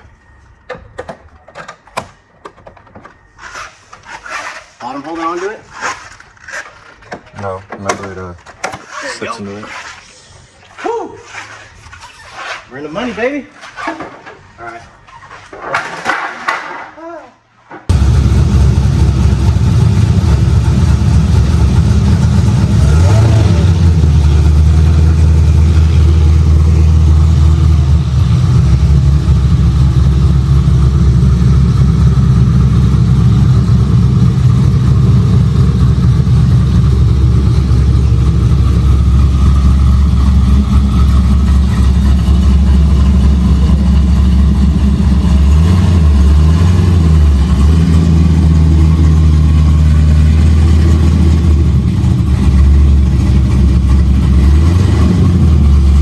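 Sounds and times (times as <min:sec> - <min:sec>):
car engine idling: 0:17.9 - 0:56.0.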